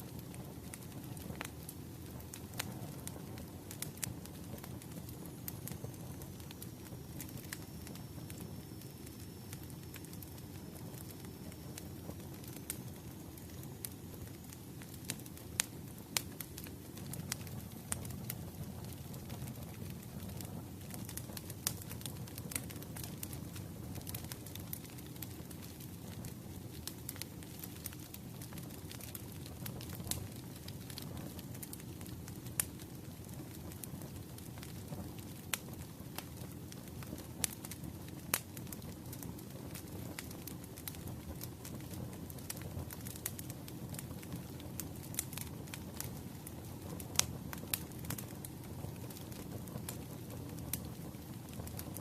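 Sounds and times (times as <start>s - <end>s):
firewood crackling and popping: 0.0s - 52.0s
low rush of flame: 0.0s - 52.0s.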